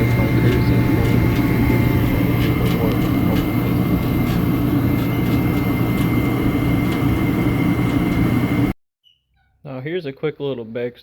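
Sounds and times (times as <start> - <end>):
space heater humming: 0.0 - 8.8.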